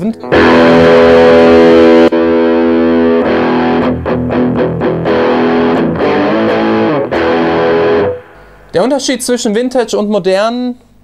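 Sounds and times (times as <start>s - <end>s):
distorted electric guitar chords: 0.2s - 8.8s.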